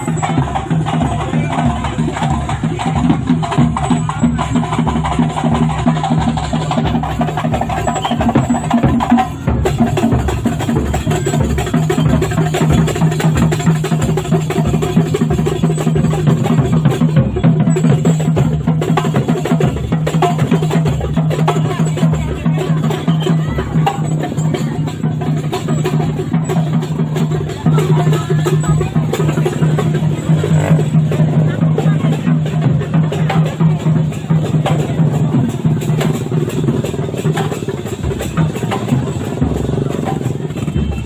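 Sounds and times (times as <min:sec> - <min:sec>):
drums: 0:00.0 - 0:41.0
fast struck percussion: 0:00.0 - 0:41.0.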